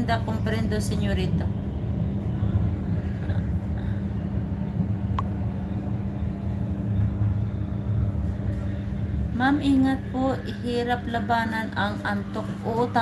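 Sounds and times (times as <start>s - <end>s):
train rumbling from inside carriage: 0.0s - 13.0s.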